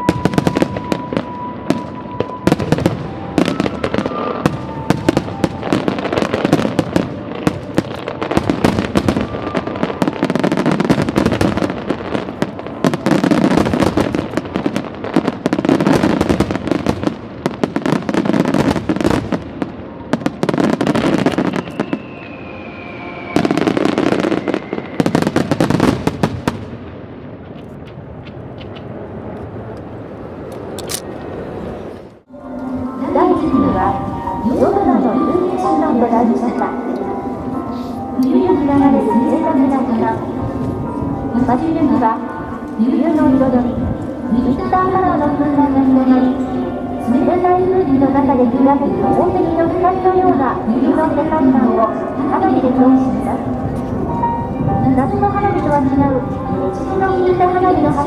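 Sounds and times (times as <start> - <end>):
fireworks bursts and crackling: 0.0 - 28.9
deep fireworks booms: 0.0 - 29.2.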